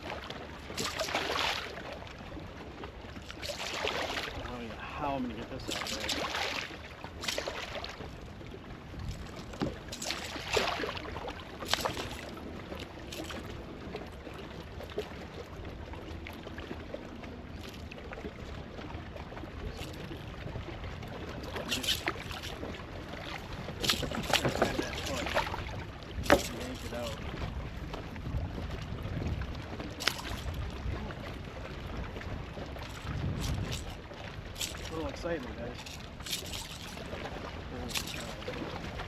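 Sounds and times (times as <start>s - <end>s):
water lapping against kayak hull: 0.0s - 39.0s
short sharp splashes: 0.7s - 1.8s, 3.3s - 4.5s, 5.6s - 8.0s, 9.9s - 12.3s, 21.5s - 27.1s, 30.0s - 30.6s, 32.8s - 38.7s
wind buffeting microphone: 22.6s - 39.0s.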